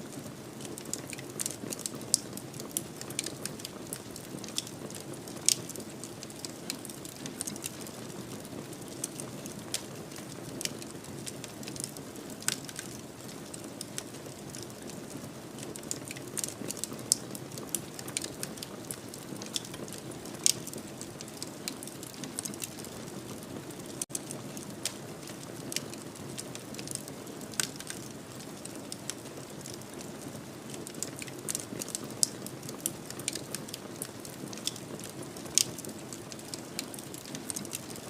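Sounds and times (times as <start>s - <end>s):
fire crackling and popping: 0.0s - 38.0s.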